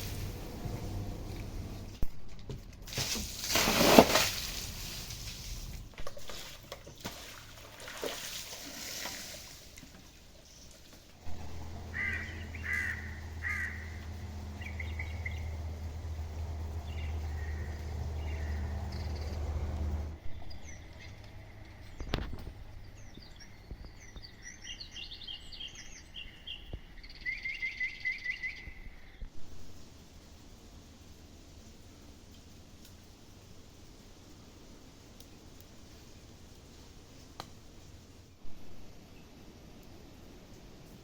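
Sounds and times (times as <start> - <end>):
steady low hum: 0.0 - 2.3, 11.1 - 23.6
crow cawing: 11.4 - 14.2, 17.3 - 18.7.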